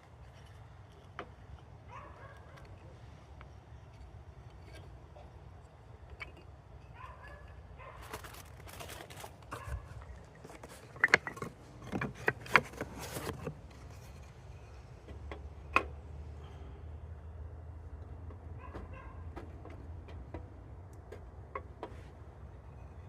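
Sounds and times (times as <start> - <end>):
handling clicks and clatters: 6.0 - 14.4.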